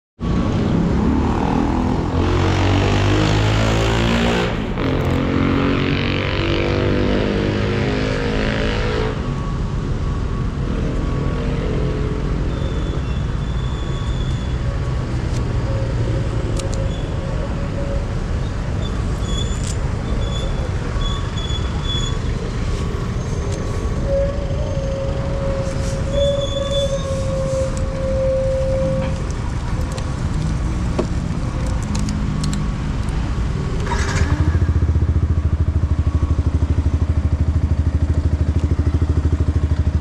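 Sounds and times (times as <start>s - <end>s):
motorcycle engine revving and idling: 19.8s - 40.0s.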